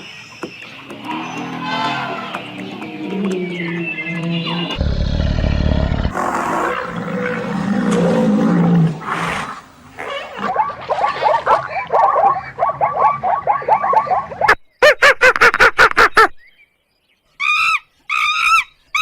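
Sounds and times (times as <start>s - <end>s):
deep roar-like animal call: 1.0s - 10.5s.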